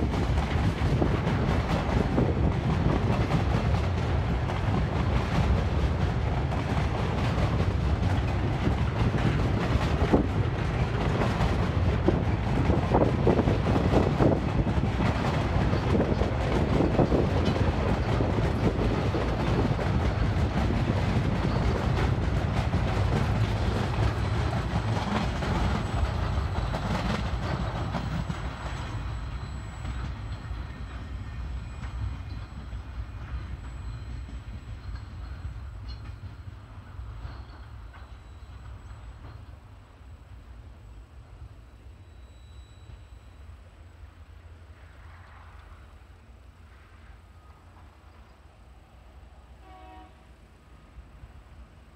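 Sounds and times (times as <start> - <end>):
freight wagons rumbling and clacking: 0.0 - 39.6.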